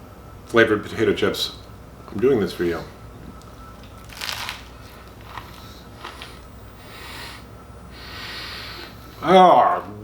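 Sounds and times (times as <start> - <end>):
chewing crunches: 3.8 - 7.8
crisp crunch of biting: 3.9 - 6.4.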